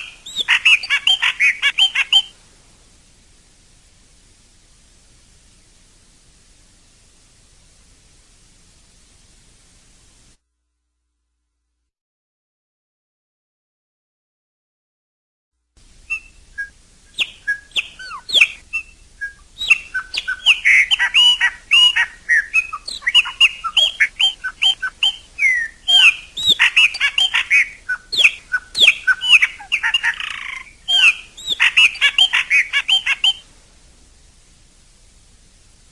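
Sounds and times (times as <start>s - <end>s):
blackbird singing whistled notes: 0.0s - 2.3s, 16.1s - 33.4s.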